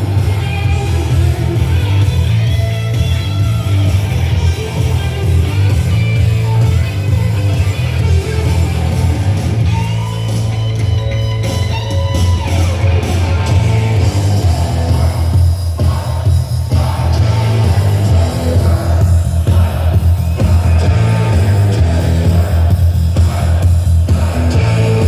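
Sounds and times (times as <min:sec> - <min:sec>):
loud hard rock music with singing: 0:00.0 - 0:25.0.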